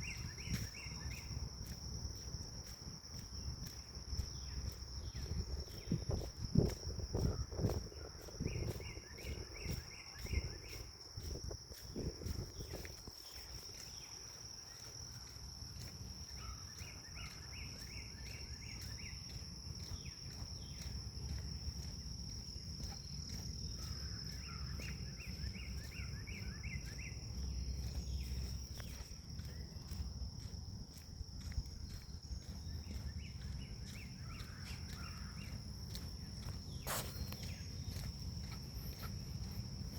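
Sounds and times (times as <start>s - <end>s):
wind rumble on microphone: 0.0s - 14.1s, 14.8s - 39.9s
insects trilling: 0.0s - 39.9s
footsteps: 16.8s - 39.9s.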